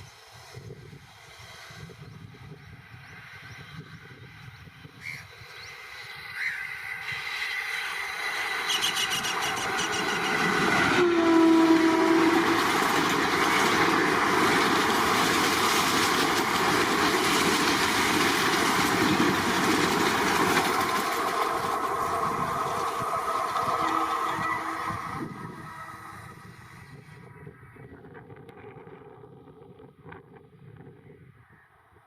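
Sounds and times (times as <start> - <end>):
train passing: 0.0 - 29.7
train horn blast: 8.7 - 12.9, 23.2 - 26.8.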